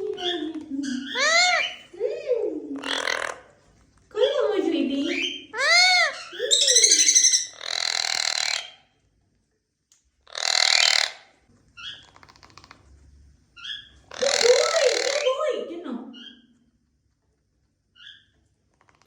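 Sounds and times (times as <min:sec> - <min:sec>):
parrot squawking: 0:00.0 - 0:02.0, 0:02.8 - 0:03.6, 0:05.0 - 0:08.8, 0:10.3 - 0:12.0, 0:13.6 - 0:15.4
parrot chirps: 0:00.1 - 0:02.0, 0:02.8 - 0:03.6, 0:05.0 - 0:08.9, 0:10.3 - 0:12.7, 0:13.6 - 0:15.3, 0:18.0 - 0:18.3.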